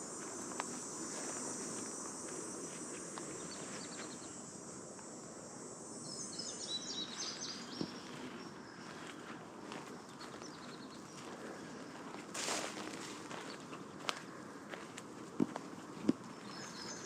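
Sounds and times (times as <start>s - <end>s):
insects trilling: 0.0s - 17.0s
songbird twittering: 6.0s - 8.9s, 16.3s - 17.0s.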